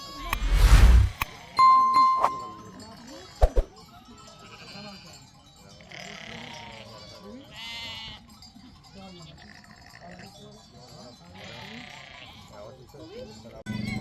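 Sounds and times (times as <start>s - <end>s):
livestock bleating: 5.9s - 8.2s, 11.4s - 12.6s.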